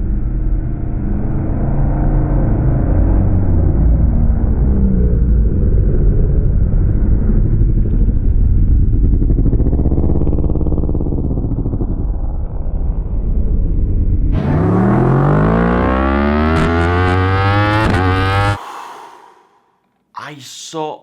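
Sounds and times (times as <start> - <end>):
racing motorcycles accelerating past: 14.4 - 18.6.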